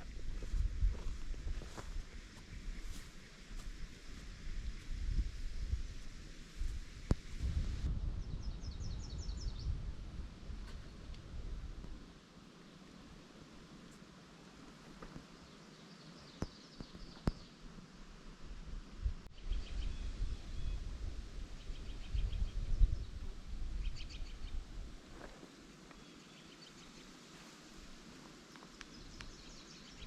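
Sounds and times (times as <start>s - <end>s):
songbirds chirping trills: 15.2s - 17.7s, 25.6s - 30.0s.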